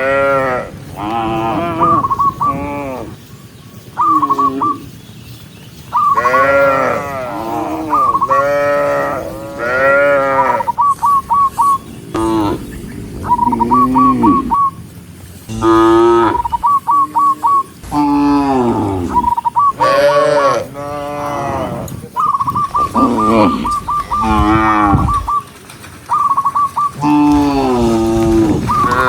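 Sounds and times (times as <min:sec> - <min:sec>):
cows mooing: 0:00.0 - 0:03.2, 0:06.1 - 0:10.8, 0:12.1 - 0:14.8, 0:15.5 - 0:25.3, 0:26.9 - 0:29.0.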